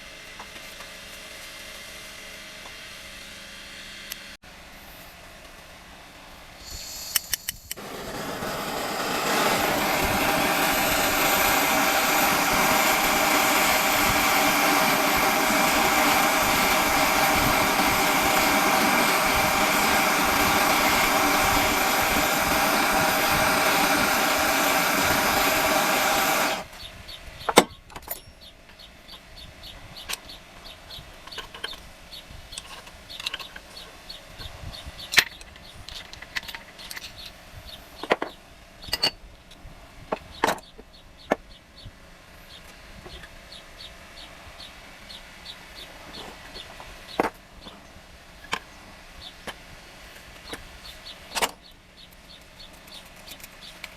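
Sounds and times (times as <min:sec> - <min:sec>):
power tool motor running: 0:06.6 - 0:26.9.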